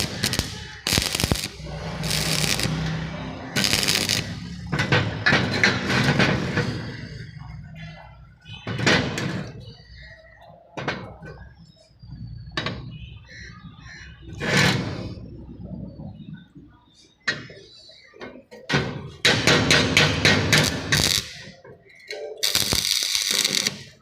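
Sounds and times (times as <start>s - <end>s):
harsh metalworking noise and knocks: 0.0s - 9.8s, 10.8s - 11.4s, 12.6s - 13.0s, 18.5s - 24.0s.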